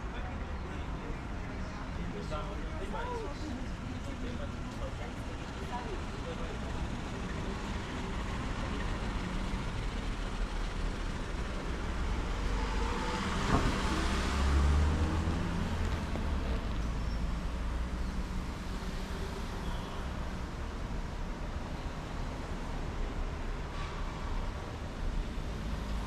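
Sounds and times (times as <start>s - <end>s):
city street traffic: 0.0s - 26.0s
vehicle passing close: 12.0s - 16.8s.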